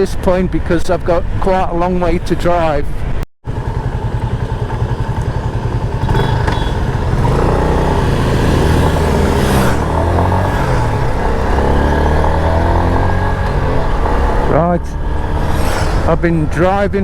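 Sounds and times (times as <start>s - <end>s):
road and air noise: 0.0s - 17.0s
motorcycle engine running: 3.4s - 17.0s.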